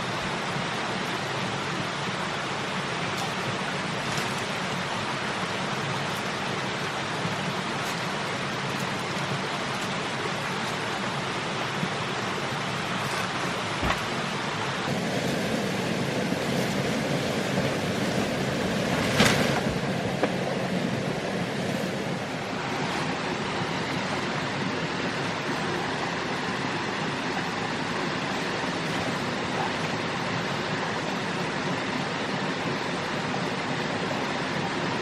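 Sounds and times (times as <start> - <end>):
steady rushing noise: 0.0 - 35.0.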